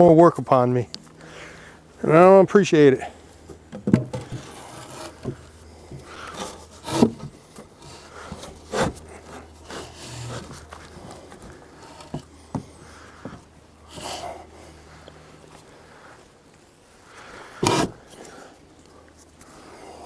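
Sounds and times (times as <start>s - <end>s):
wood rubbing and scraping: 3.5s - 15.8s, 17.6s - 18.4s.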